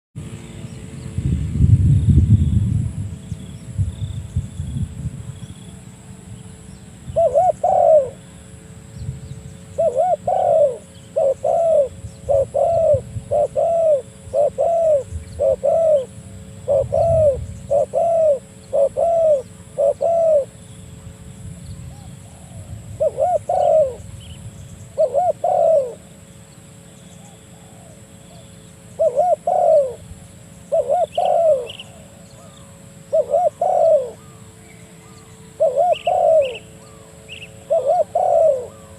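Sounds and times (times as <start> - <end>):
dove cooing: 7.0 - 8.4, 9.6 - 20.6, 21.8 - 24.1, 24.9 - 26.1, 27.2 - 38.9.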